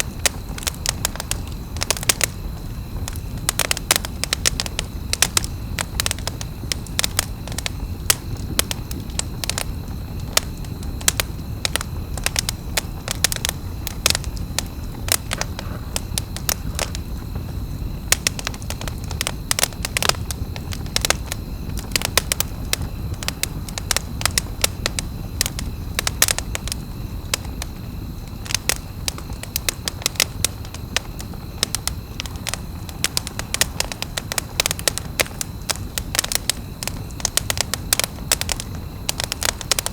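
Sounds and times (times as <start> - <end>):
campfire crackling and popping: 0.0 - 39.9
low rumble of burning flames: 0.0 - 39.9.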